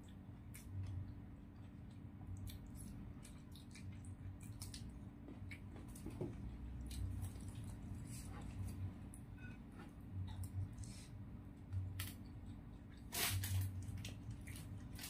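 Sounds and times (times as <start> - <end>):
chewing mouth clicks and smacks: 0.0 - 7.9
steady low hum: 0.0 - 15.0.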